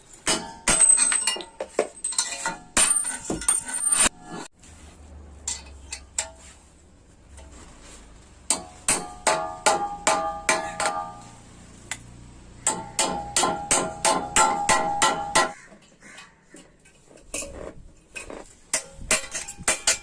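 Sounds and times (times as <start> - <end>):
hammer striking metal: 0.2 - 4.2, 8.5 - 11.3, 12.6 - 15.6.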